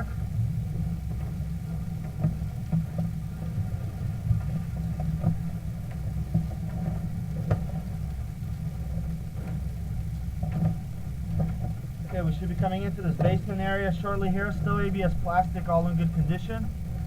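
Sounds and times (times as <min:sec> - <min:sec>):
low mechanical hum: 0:00.0 - 0:17.0
light clicks and taps: 0:04.3 - 0:08.3.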